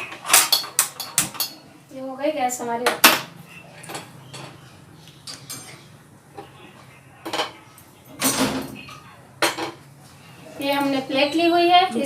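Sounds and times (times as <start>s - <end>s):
kitchenware clicks and knocks: 0.0s - 1.6s, 2.6s - 4.6s, 7.2s - 9.8s
kitchenware clattering: 0.0s - 1.7s, 2.5s - 6.6s, 7.2s - 9.9s.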